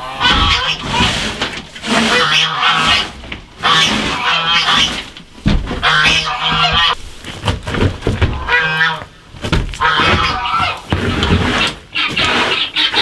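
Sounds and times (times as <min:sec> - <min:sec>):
geese honking: 0:00.0 - 0:07.3, 0:08.3 - 0:10.9.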